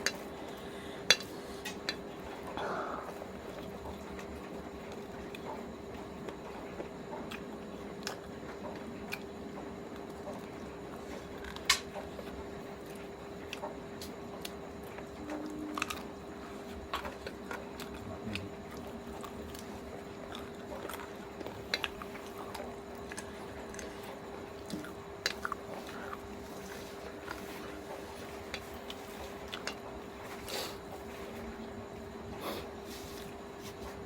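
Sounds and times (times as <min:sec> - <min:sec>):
steady hum: 0:00.0 - 0:34.0
person chewing and crunching: 0:14.4 - 0:16.2, 0:16.9 - 0:30.8.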